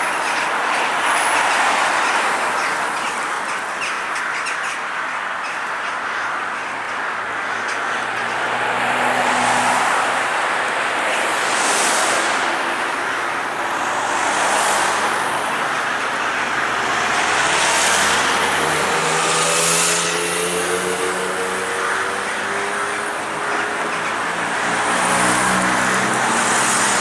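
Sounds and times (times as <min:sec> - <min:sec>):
vehicles passing: 0:00.0 - 0:27.0
engine drone rising in pitch: 0:13.8 - 0:27.0.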